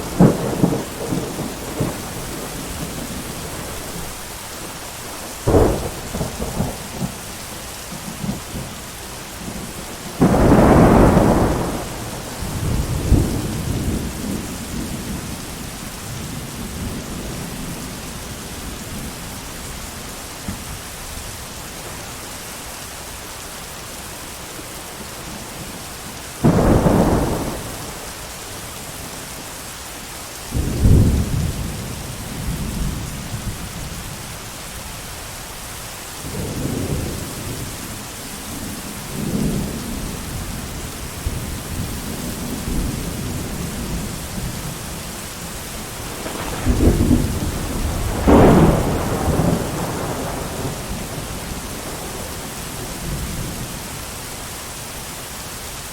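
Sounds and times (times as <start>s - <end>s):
heavy rain hiss: 0.0s - 55.9s
thunder: 0.1s - 4.0s, 5.4s - 7.2s, 9.6s - 15.2s, 26.4s - 28.1s, 46.0s - 53.6s.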